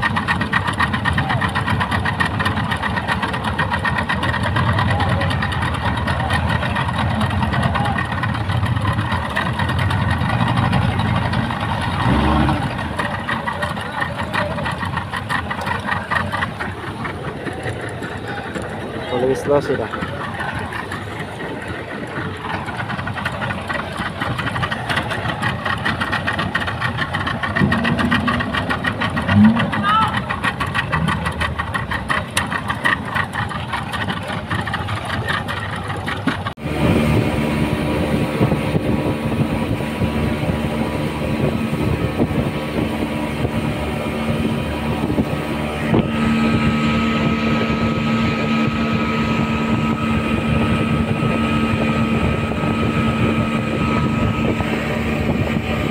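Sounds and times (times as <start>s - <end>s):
speedboat engine running: 0.0s - 55.9s.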